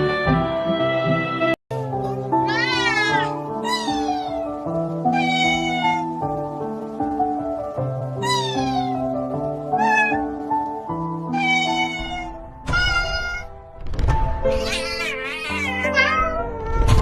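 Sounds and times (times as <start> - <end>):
background music with held notes: 0.0 - 17.0
kitten meowing: 2.4 - 4.4, 5.1 - 6.1, 8.2 - 9.0, 9.8 - 10.4, 11.3 - 13.6, 14.5 - 17.0.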